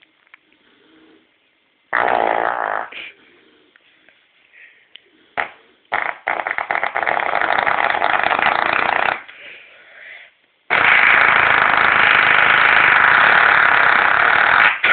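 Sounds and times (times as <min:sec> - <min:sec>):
fart noises: 0:01.9 - 0:03.2, 0:05.4 - 0:09.3, 0:10.7 - 0:14.9.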